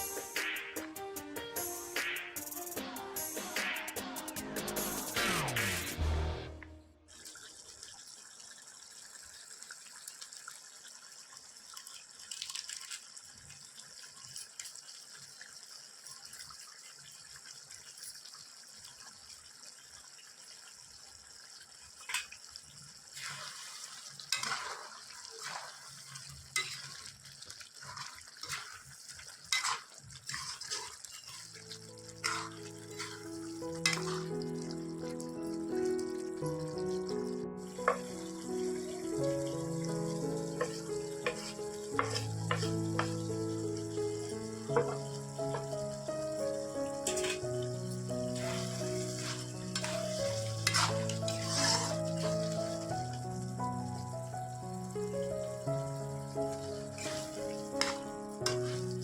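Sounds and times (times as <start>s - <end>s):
background music: 0.0s - 7.1s, 31.8s - 59.0s
chicken sizzling in a pan: 13.4s - 59.0s
spatula scraping a pan: 23.2s - 24.8s, 26.6s - 27.1s, 27.8s - 34.3s, 40.6s - 43.2s, 44.8s - 45.7s, 47.0s - 52.9s, 56.6s - 59.0s.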